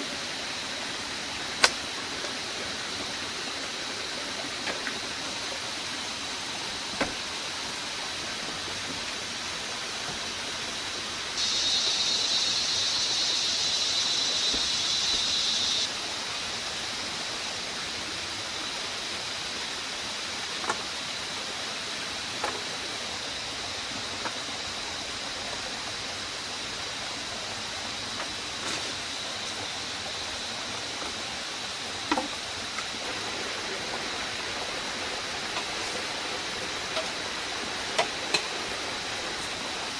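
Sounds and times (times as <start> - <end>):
steady rushing hiss: 0.0 - 39.9
faint high steady tone: 11.4 - 15.9
high-pitched buzz: 11.4 - 15.9.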